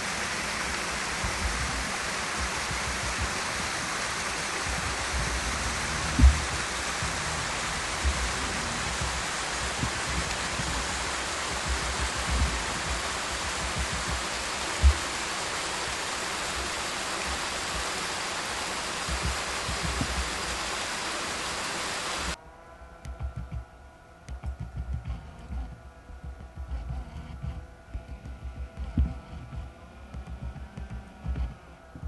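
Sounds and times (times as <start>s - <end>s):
faint low rumbles: 0.0s - 18.0s, 18.6s - 20.9s, 22.2s - 32.0s
waterfall roaring: 0.0s - 22.4s
faint hum: 0.0s - 32.0s
low thump: 4.7s - 9.2s.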